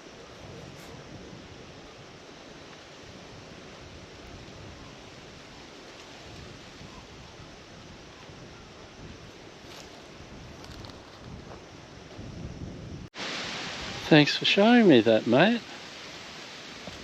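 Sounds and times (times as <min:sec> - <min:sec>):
steady wind: 0:00.0 - 0:17.0.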